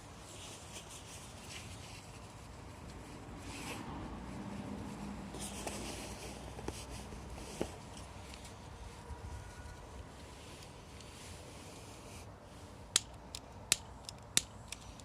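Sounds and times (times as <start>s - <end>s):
fire crackling and popping: 12.9s - 15.0s.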